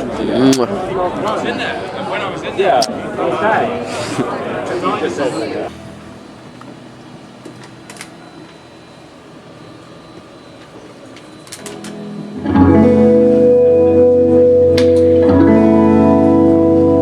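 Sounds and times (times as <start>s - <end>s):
low room noise: 0.0s - 17.0s
electric guitar chords: 5.7s - 10.6s, 11.5s - 17.0s.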